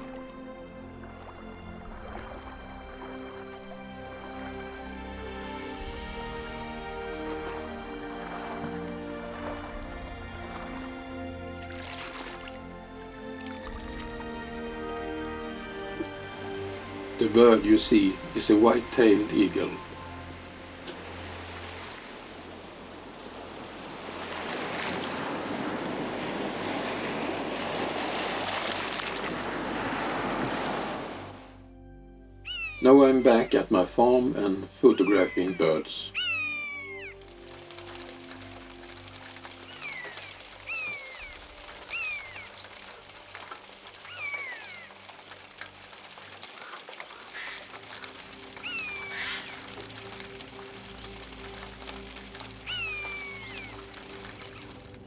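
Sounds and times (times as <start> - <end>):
wind: 0.0 - 55.0
surf: 1.0 - 12.6, 15.6 - 31.4
bird calling falling cries: 32.4 - 45.4, 46.5 - 54.8.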